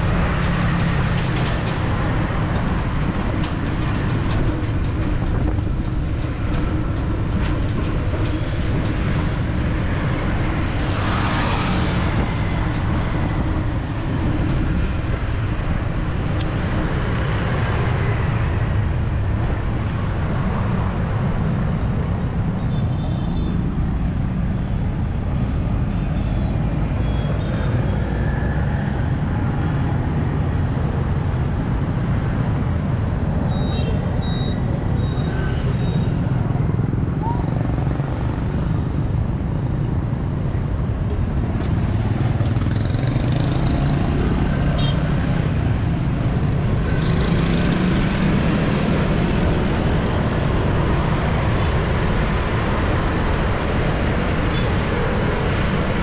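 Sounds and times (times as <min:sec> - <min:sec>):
motorbike street traffic: 0:00.0 - 0:56.0.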